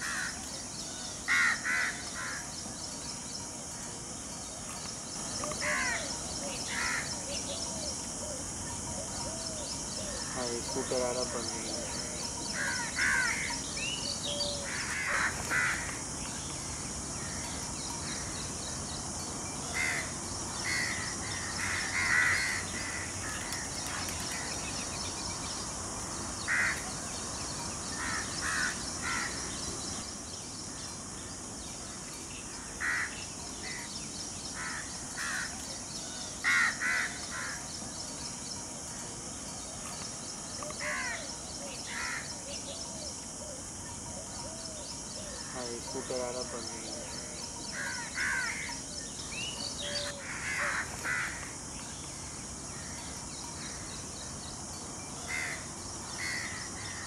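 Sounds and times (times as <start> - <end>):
outdoor ambient hiss: 0.0 - 57.0
bird calls: 39.8 - 54.2.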